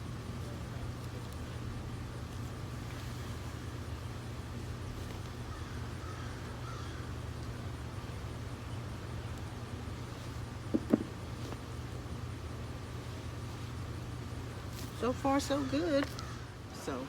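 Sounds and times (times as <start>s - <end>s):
steady low hum: 0.0s - 17.0s
faint bird calling: 5.4s - 7.2s, 15.0s - 16.9s.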